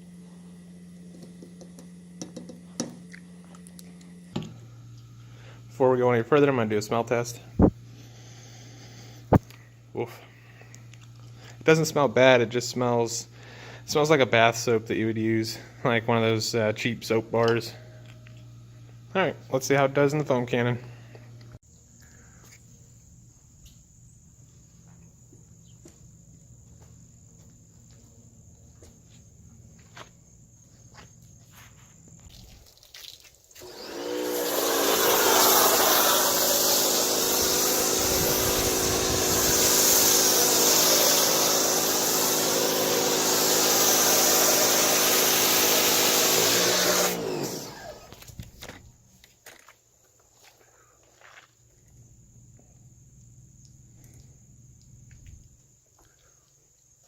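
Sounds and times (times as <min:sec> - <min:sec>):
loud spray hiss: 0:33.6 - 0:48.1
pressure washer motor humming: 0:33.6 - 0:48.4.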